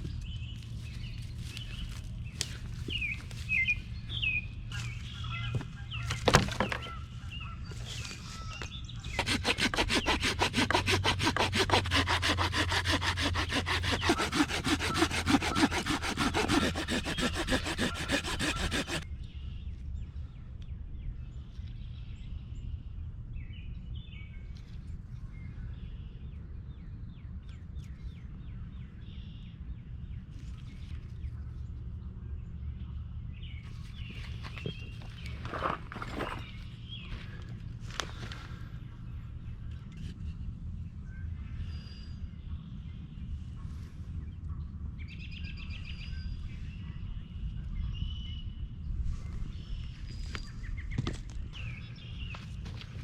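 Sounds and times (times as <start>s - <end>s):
hand saw cutting wood: 9.0s - 19.0s.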